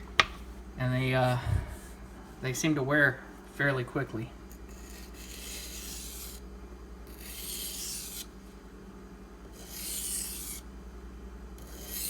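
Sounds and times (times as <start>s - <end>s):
low steady hum: 0.0s - 7.4s
knife scraping on whetstone: 0.2s - 0.4s.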